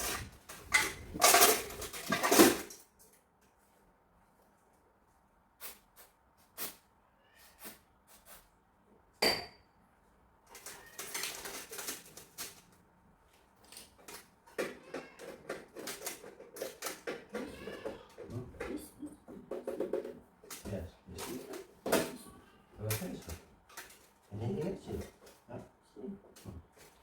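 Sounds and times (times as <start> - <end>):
continuous clattering: 0.0 - 2.8
hard objects clicking and knocking: 0.0 - 2.8, 13.7 - 22.2.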